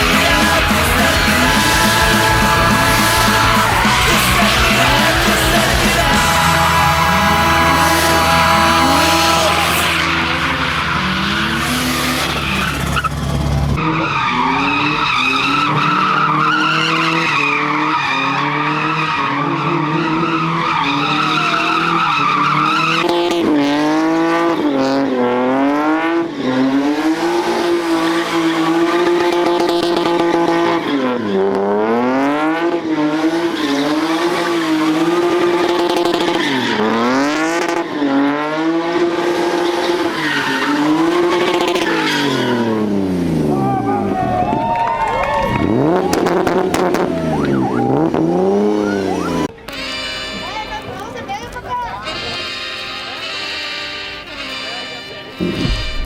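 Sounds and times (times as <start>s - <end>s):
tyres squealing on pavement: 0.0s - 24.7s, 25.9s - 56.0s
car engine revving: 0.0s - 49.8s, 54.2s - 56.0s.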